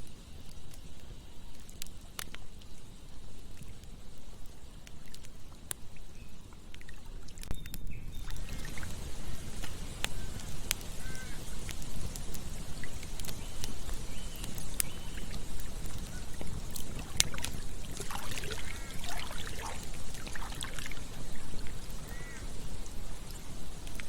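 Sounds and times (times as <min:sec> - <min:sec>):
campfire crackling: 0:00.0 - 0:24.0
fire popping: 0:00.0 - 0:24.0
river flowing: 0:08.3 - 0:24.0.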